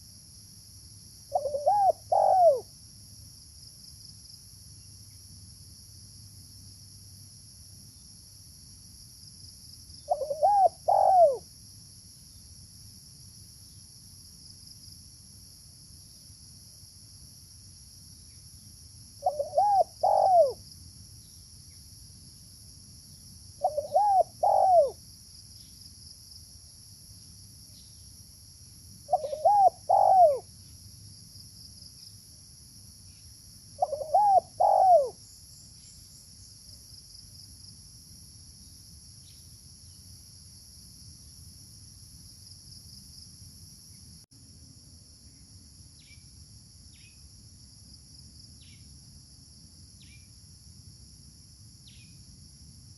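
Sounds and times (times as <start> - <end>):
dove cooing: 1.3 - 2.7, 10.1 - 11.4, 19.2 - 20.6, 23.6 - 25.0, 29.1 - 30.5, 33.8 - 35.2.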